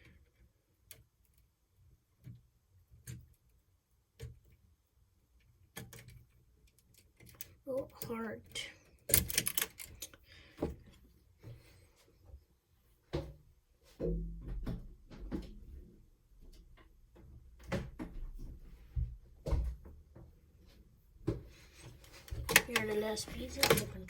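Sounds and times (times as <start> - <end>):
plastic parts clicking and knocking: 5.4 - 11.0, 21.2 - 24.0.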